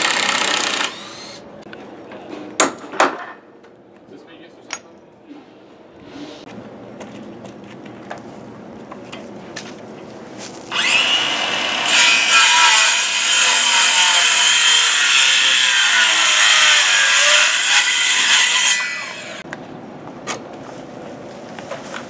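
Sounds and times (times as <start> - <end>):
power saw cutting wood: 0.0 - 1.4, 10.7 - 19.4.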